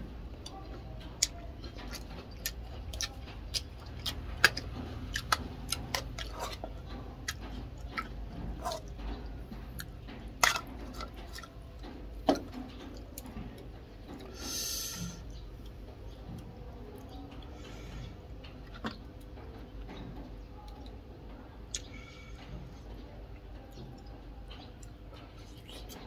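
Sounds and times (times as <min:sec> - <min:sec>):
chewing with mouth clicks: 0:00.4 - 0:14.3, 0:21.7 - 0:22.0, 0:22.6 - 0:26.0.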